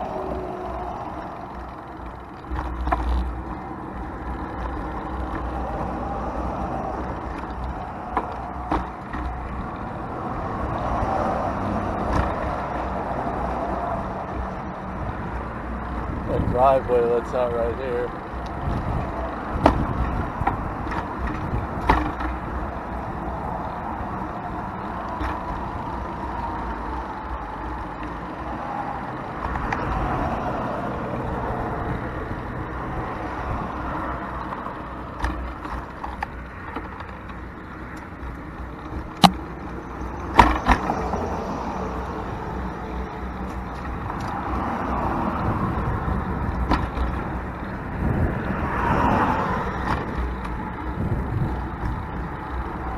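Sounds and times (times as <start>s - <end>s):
traffic passing: 0.0s - 52.9s.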